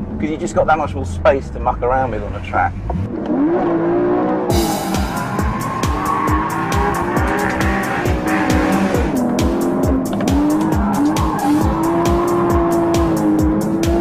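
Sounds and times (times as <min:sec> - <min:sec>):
car engine running: 0:00.0 - 0:14.0
music with steady beat: 0:04.5 - 0:14.0.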